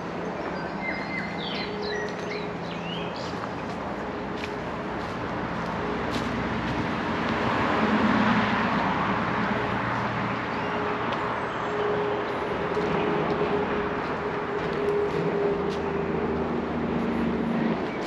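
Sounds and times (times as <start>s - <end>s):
road traffic hum: 0.0s - 18.0s
vehicle passing: 2.4s - 18.0s.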